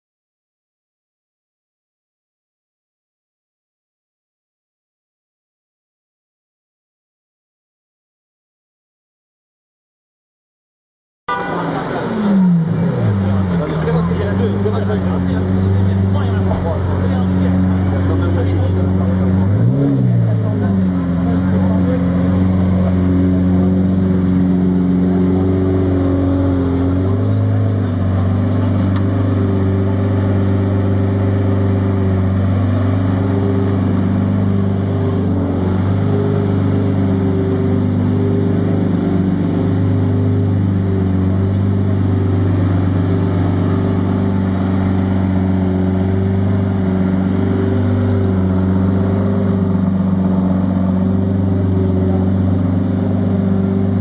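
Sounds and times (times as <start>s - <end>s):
car engine idling: 11.3s - 54.0s.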